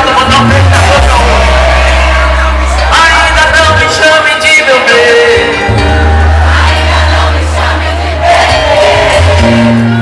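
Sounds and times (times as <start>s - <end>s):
deep bass note: 0.0s - 4.0s
live band music: 0.0s - 10.0s.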